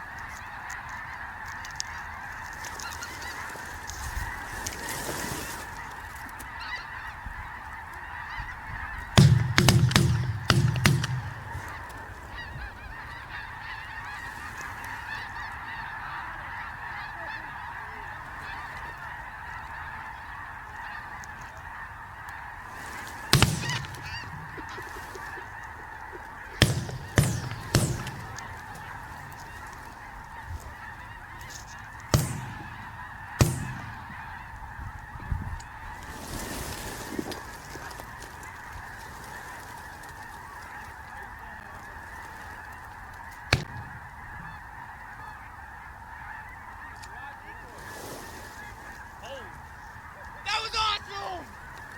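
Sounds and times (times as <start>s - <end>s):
flock of geese calling: 0.0s - 51.9s
shotgun shots: 9.2s - 12.0s, 23.3s - 24.8s, 26.6s - 29.6s, 32.0s - 34.8s, 43.5s - 44.5s.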